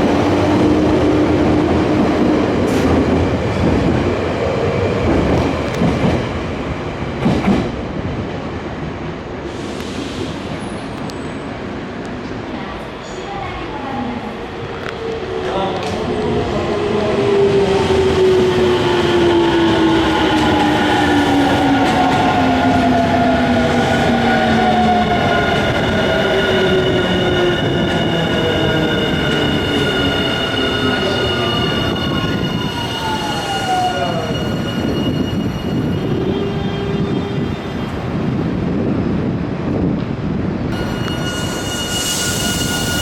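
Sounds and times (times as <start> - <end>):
high squealing tones: 25.6 - 36.6, 40.7 - 43.0.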